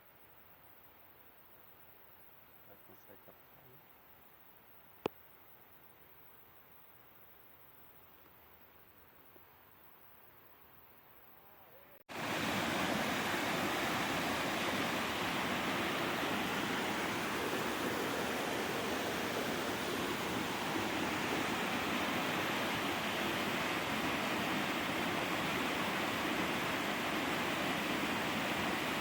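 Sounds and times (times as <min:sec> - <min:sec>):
rushing water: 0:12.1 - 0:29.0.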